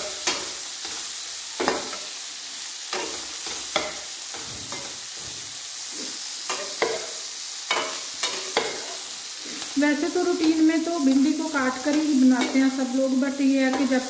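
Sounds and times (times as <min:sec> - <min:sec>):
okra sizzling in oil: 0:00.0 - 0:14.0
spatula scraping pan: 0:02.9 - 0:14.0.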